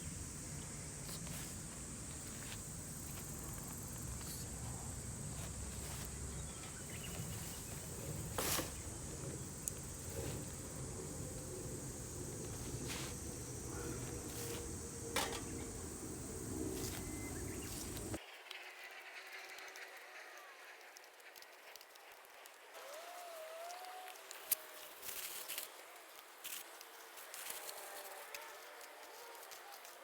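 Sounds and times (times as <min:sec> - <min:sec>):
insects chirring: 0:00.0 - 0:18.2
low outdoor rumble: 0:00.0 - 0:18.2.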